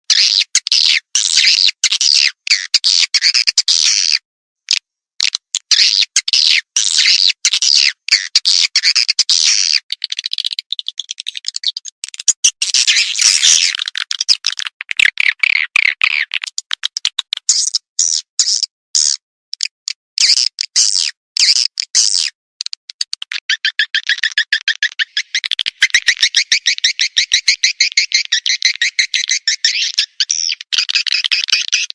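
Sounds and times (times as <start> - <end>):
swiftlets twittering and chirping: 9.6 - 16.6, 23.2 - 31.9.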